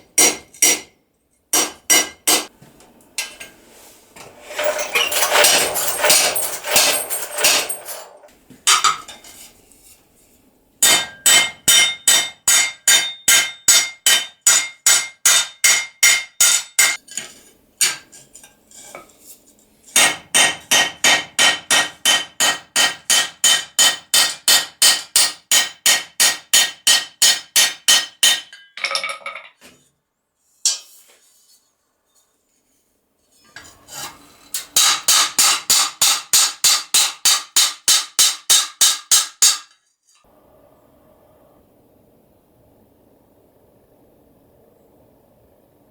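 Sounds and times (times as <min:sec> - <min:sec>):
hammer striking sheet steel: 0:00.0 - 0:02.5, 0:10.8 - 0:17.0, 0:20.0 - 0:28.6, 0:33.9 - 0:39.8
metal clatter: 0:04.2 - 0:09.3.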